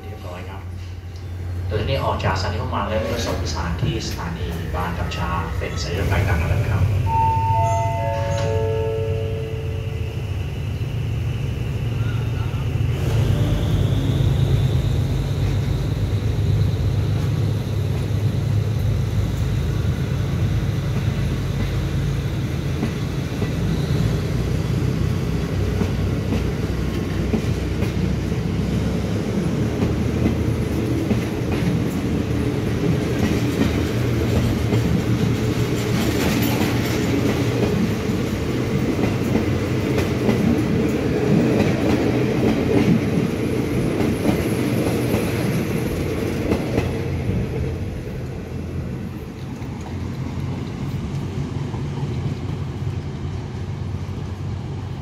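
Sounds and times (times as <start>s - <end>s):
train low rumble: 0.0s - 55.0s
train wheels clicking over rail joints: 20.7s - 48.4s.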